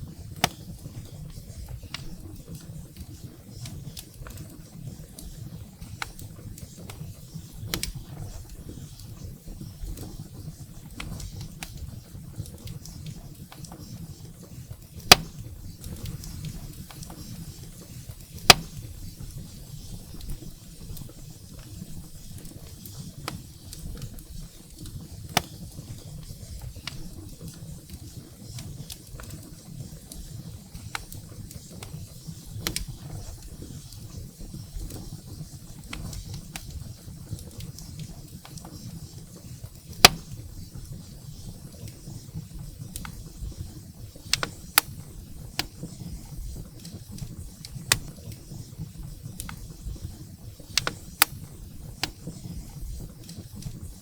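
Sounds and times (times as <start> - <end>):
small fire crackles: 0.0 - 54.0
loud sharp pops of firewood: 0.4 - 0.8, 15.0 - 17.6, 18.2 - 19.2, 25.3 - 25.7, 39.8 - 40.5, 44.3 - 45.9, 47.7 - 48.2, 50.7 - 52.2.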